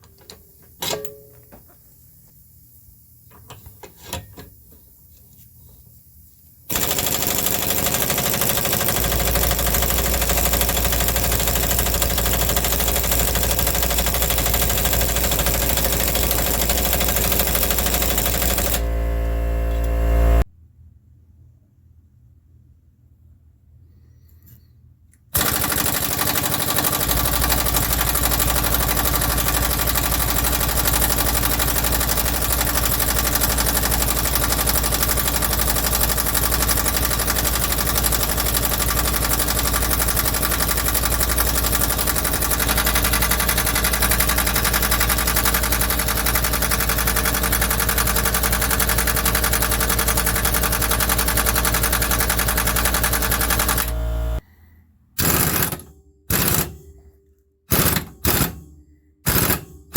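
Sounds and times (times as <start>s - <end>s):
impact wrench hammering: 6.7s - 18.9s, 25.4s - 54.4s, 55.2s - 57.0s, 57.7s - 59.9s.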